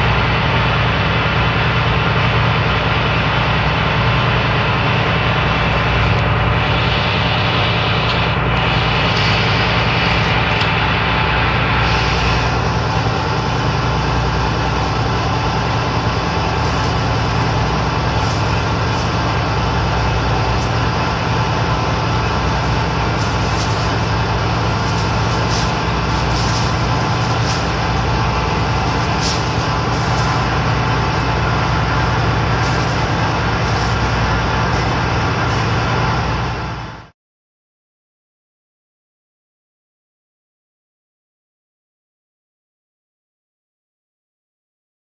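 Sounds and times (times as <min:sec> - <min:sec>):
ship engines droning: 0:00.0 - 0:37.1.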